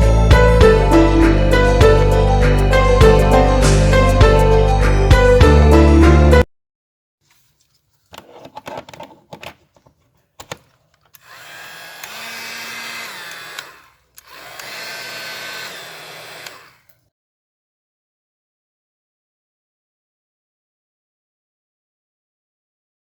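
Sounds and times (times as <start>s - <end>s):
hair dryer running: 11.2s - 16.9s.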